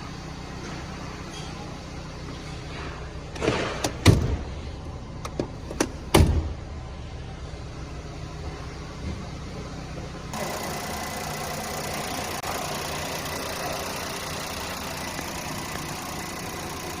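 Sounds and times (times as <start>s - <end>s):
car engine idling: 3.9s - 17.0s.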